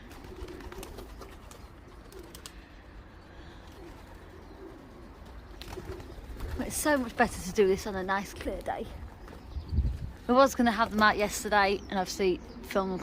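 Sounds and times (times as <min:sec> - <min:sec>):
pigeons cooing: 0:00.0 - 0:09.3.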